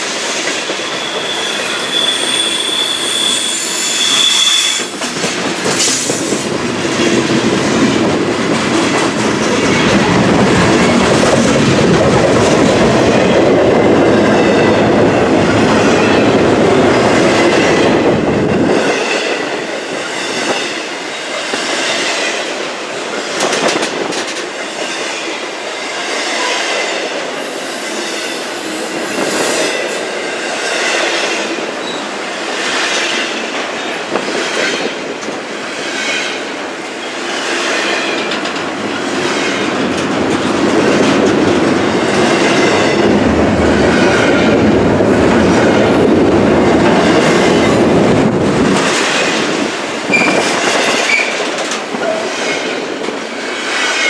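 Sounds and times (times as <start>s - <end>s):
wheel squeal: 0.3s - 5.0s, 50.1s - 50.5s.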